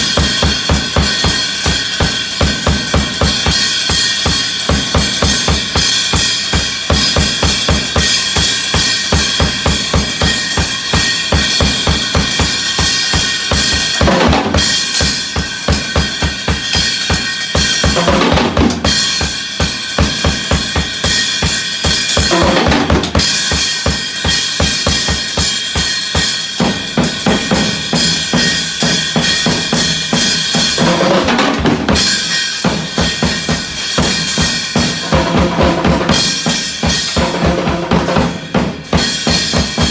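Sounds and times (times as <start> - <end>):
snare drum hits: 0.0 - 19.4, 20.2 - 25.4
drum fill: 0.0 - 39.9.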